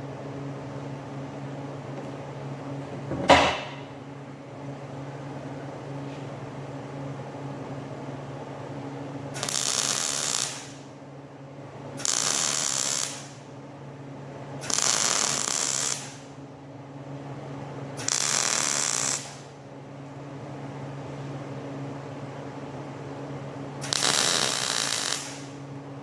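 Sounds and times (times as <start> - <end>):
welding crackle: 9.4 - 10.8, 12.0 - 13.4, 14.6 - 16.3, 18.0 - 19.4, 23.8 - 25.6.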